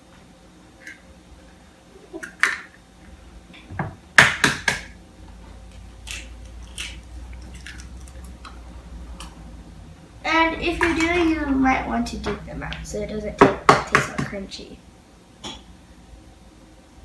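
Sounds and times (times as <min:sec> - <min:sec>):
eggs cracking against bowl: 0:06.0 - 0:09.4.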